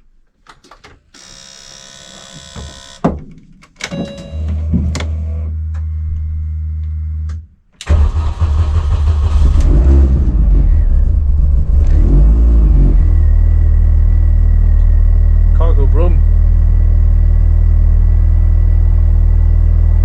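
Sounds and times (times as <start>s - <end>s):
car engine starting and idling: 4.9s - 20.0s
steady hum: 9.3s - 20.0s.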